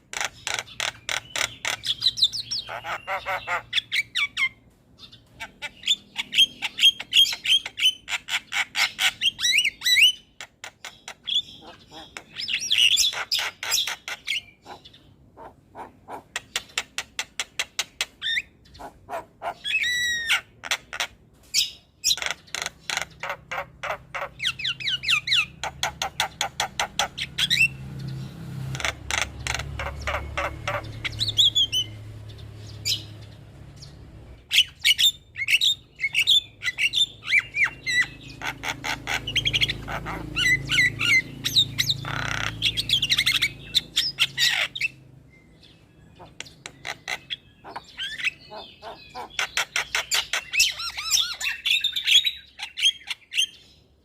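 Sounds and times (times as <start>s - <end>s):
mynas chattering and calling: 0.0s - 4.5s, 5.4s - 16.8s, 18.2s - 21.2s, 22.1s - 27.8s, 28.7s - 32.0s, 34.5s - 45.2s, 46.1s - 51.8s.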